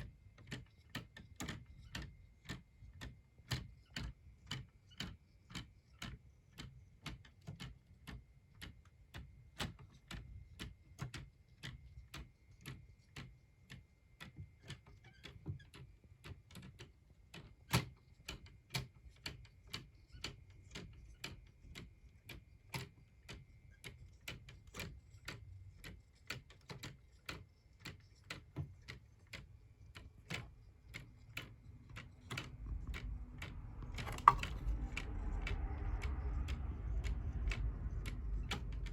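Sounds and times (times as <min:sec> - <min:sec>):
mechanical clock ticking: 0:10.1 - 0:38.9
low rumble: 0:31.7 - 0:38.9.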